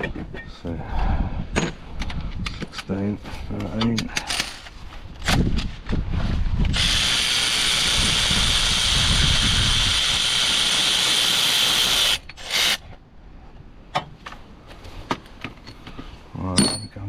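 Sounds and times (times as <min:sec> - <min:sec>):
cordless power tool running: 0:06.7 - 0:12.2.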